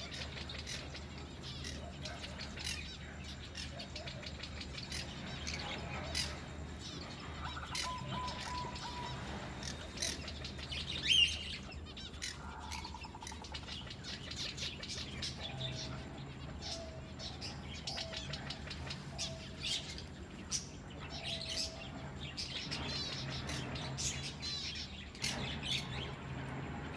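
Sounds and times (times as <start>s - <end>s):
birds chirping: 0.0s - 26.9s
steady low hum: 0.0s - 26.9s
loud rising bird call: 7.4s - 10.3s.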